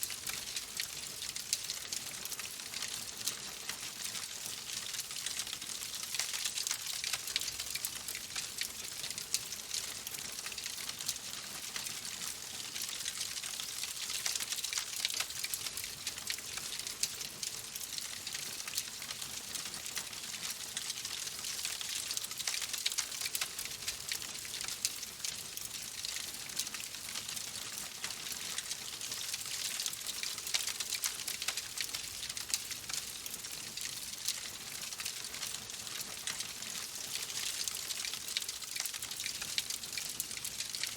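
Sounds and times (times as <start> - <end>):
wood fire crackling: 19.4 - 33.4.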